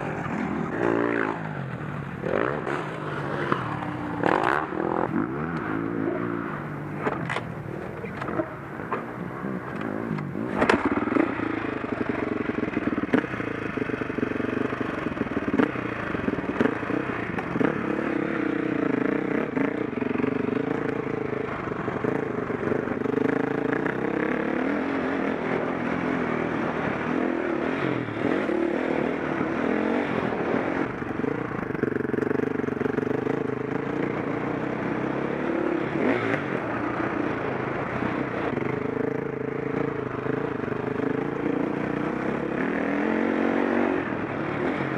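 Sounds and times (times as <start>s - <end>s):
motocross engine revving: 0.0s - 1.6s, 2.2s - 7.3s.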